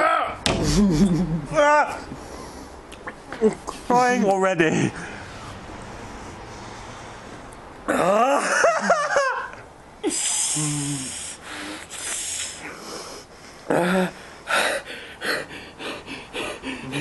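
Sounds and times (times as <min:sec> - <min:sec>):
sharp hissing breaths: 0:05.0 - 0:07.5, 0:10.0 - 0:17.0
person moaning: 0:07.9 - 0:08.5, 0:10.0 - 0:11.3, 0:13.7 - 0:14.6, 0:16.4 - 0:17.0
person wheezing and gasping: 0:10.0 - 0:11.4, 0:13.6 - 0:17.0.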